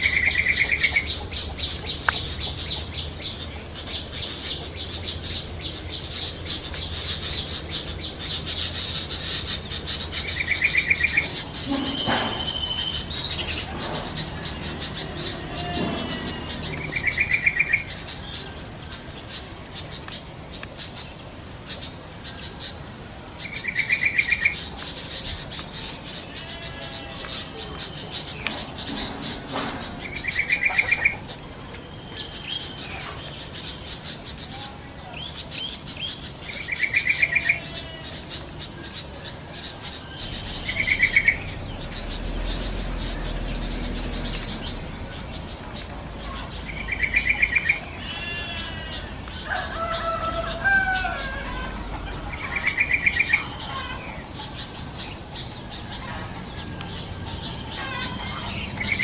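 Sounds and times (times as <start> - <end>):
bird whistles and chirps: 11.7 - 13.5
faint ticking chorus: 38.6 - 49.5.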